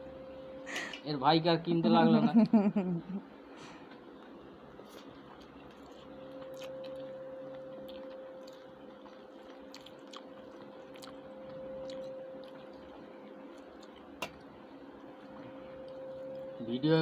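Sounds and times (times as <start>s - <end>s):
steady hum: 0.0s - 17.0s
faint chewing: 3.8s - 16.5s.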